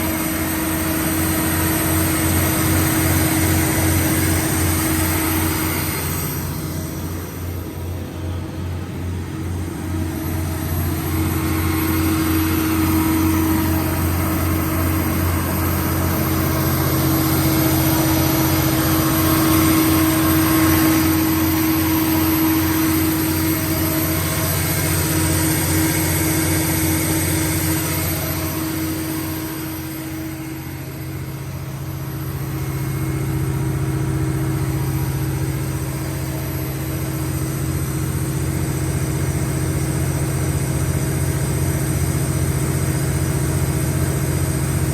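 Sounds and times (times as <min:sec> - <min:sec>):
diesel generator running: 0:00.0 - 0:44.9.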